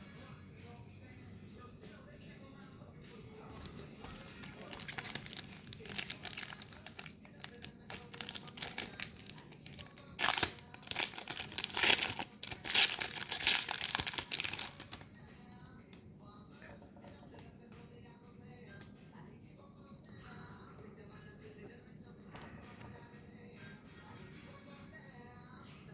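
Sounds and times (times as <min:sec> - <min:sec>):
foil wrapper crinkling and tearing: 0:03.6 - 0:15.0.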